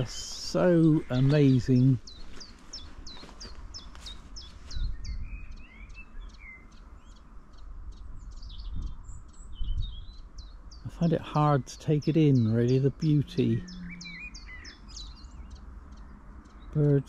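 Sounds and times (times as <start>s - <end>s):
wind rumble on microphone: 0.0s - 10.9s
birds singing: 0.0s - 17.0s.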